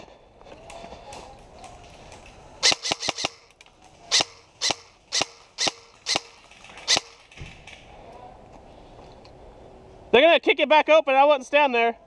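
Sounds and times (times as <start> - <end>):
airsoft gun shots: 2.6 - 3.4, 4.1 - 7.8.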